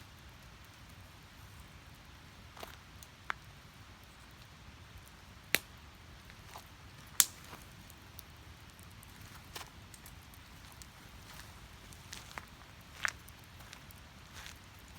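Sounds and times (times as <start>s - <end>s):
wood fire crackling: 0.0s - 14.9s
loud fire pops: 7.1s - 8.0s.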